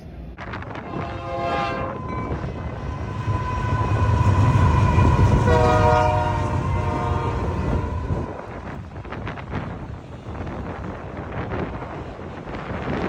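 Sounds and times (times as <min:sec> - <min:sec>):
passing train rumble: 0:00.0 - 0:13.0
train horn blasts: 0:00.7 - 0:08.4.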